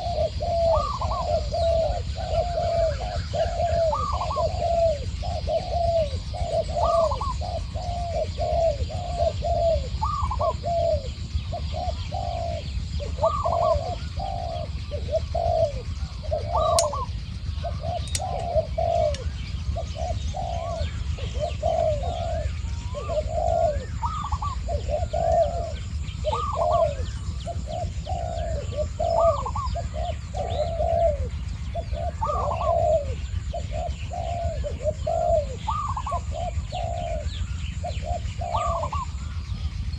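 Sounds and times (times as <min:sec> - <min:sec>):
doves cooing: 0:00.0 - 0:39.9
sharp clicks: 0:18.0 - 0:18.5.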